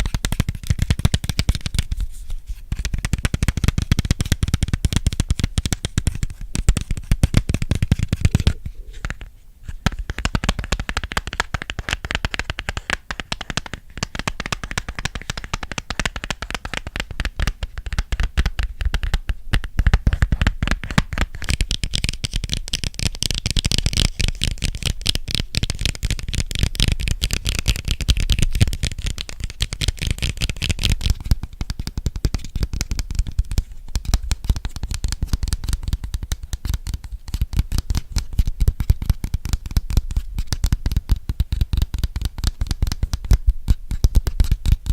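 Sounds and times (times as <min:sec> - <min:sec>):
rapid fingertip and nail tapping: 0:00.0 - 0:02.0, 0:02.7 - 0:44.9.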